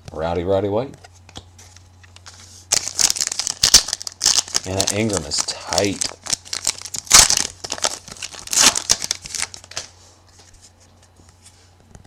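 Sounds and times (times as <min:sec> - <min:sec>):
wrapper crinkling and tearing: 0:02.2 - 0:09.9.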